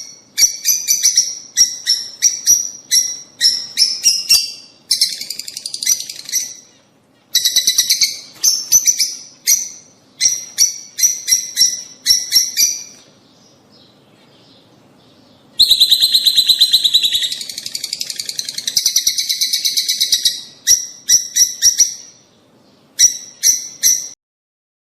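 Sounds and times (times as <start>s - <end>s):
lovebirds chirping and chattering: 0.0s - 24.2s.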